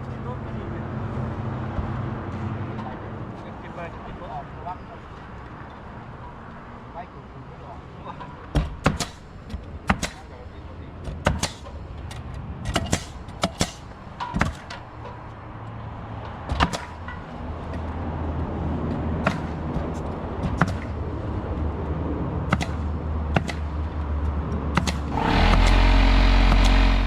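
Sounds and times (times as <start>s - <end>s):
low hum: 25.1s - 27.0s.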